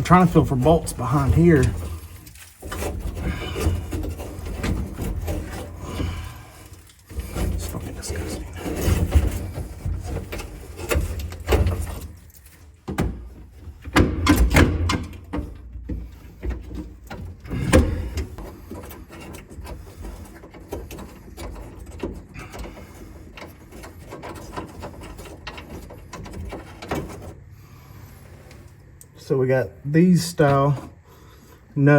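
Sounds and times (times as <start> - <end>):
knocks and clatter against metal: 0.0 - 27.4.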